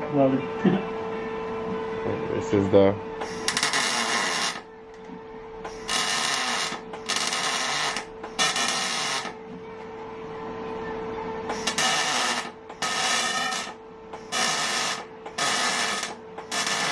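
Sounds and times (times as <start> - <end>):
electric welding bursts: 3.2 - 4.7, 5.7 - 9.4, 11.5 - 16.9.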